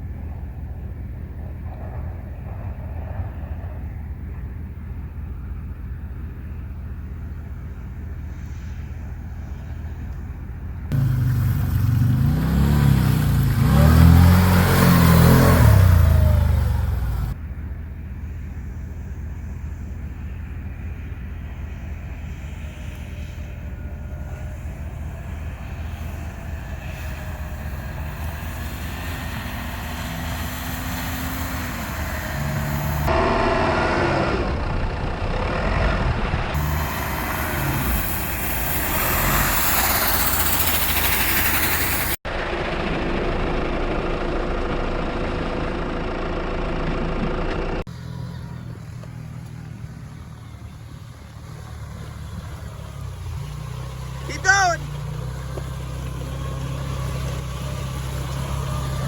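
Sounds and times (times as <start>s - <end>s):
engine running and revving: 10.9s - 17.4s, 19.4s - 59.0s
loud rushing noise: 31.9s - 44.0s.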